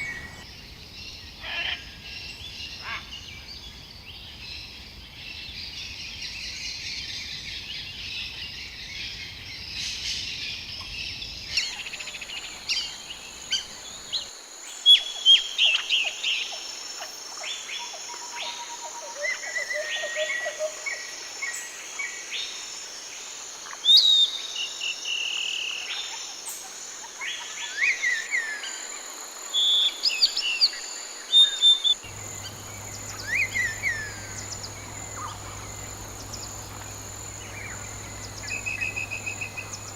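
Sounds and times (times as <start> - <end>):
high insect-like hiss: 0.0 - 0.4, 11.6 - 19.3, 32.0 - 39.9
small birds chirping: 0.0 - 0.4, 31.8 - 39.9.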